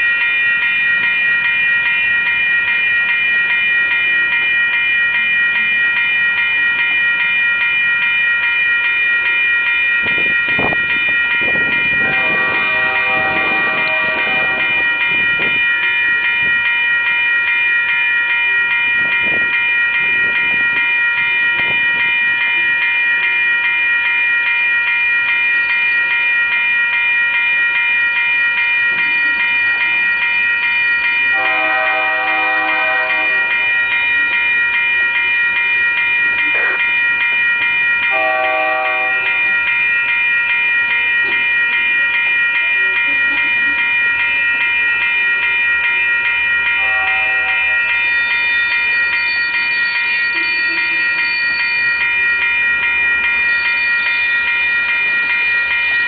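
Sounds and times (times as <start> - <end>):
freight train rolling past: 0.0 - 56.0
train horn blasts: 12.1 - 14.7, 31.4 - 33.4.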